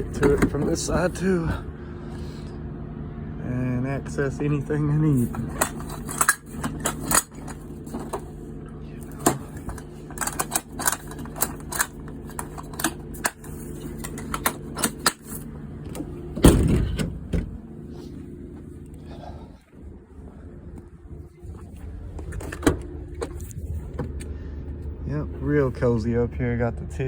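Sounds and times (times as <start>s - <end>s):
items clicking and clattering: 0.0s - 0.7s, 5.2s - 8.3s, 9.0s - 16.1s
heavy thump: 16.4s - 17.6s.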